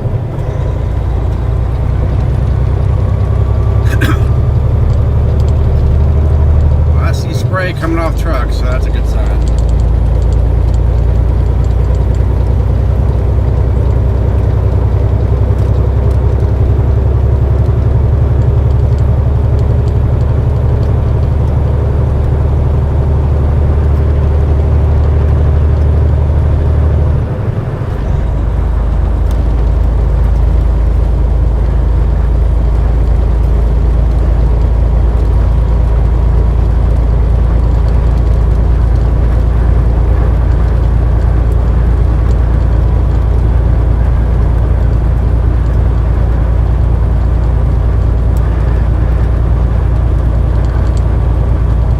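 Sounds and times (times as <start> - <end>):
truck engine and road noise droning: 0.0 - 51.9.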